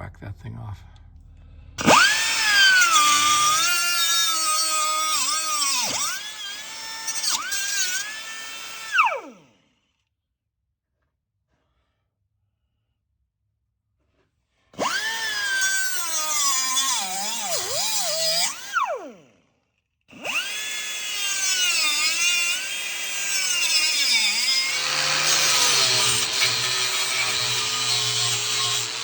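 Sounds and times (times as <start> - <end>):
power tool cutting metal: 1.8 - 9.6, 14.8 - 19.3, 20.1 - 29.0.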